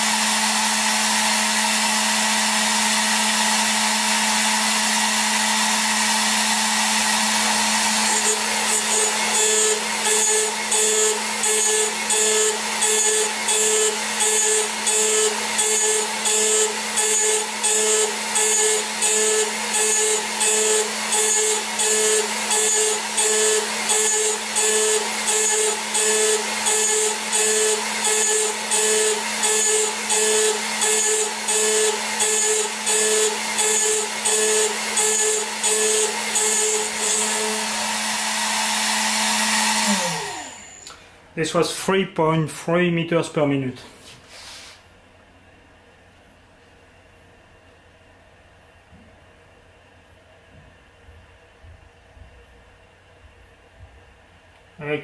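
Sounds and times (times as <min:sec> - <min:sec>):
cutter cutting metal: 0:00.0 - 0:41.0
mill spindle running: 0:00.0 - 0:41.0.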